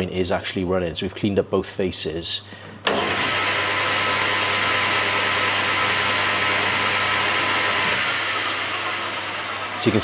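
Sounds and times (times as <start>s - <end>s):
lathe whirring: 2.8s - 10.0s.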